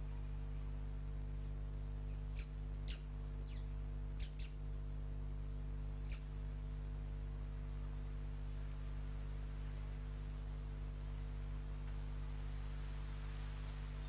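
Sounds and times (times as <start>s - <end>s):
steady low hum: 0.0s - 14.0s
small birds chirping: 1.1s - 5.2s, 5.8s - 12.1s.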